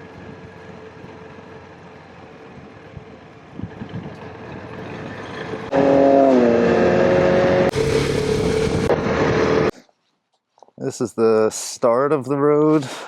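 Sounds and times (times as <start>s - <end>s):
motorcycle engine running: 0.0s - 9.7s
wind noise: 2.6s - 5.7s, 6.5s - 9.7s.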